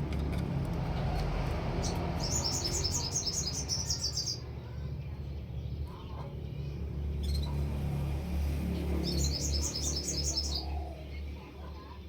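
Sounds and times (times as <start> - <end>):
songbird trilling: 9.1 - 10.9.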